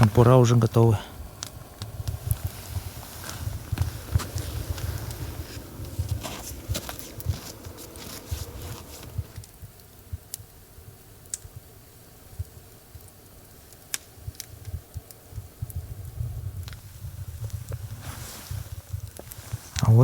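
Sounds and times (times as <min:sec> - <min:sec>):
campfire crackling and popping: 0:00.0 - 0:20.0
low fire rumble: 0:00.0 - 0:20.0.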